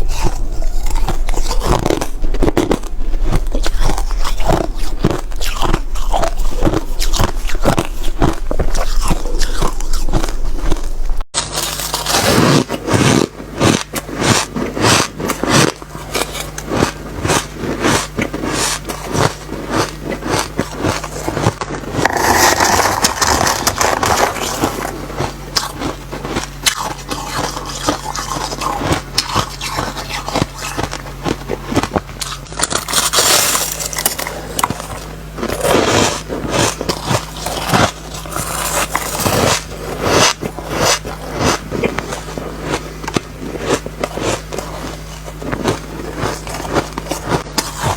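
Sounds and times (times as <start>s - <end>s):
chewing crunchy ice: 0.0s - 47.9s.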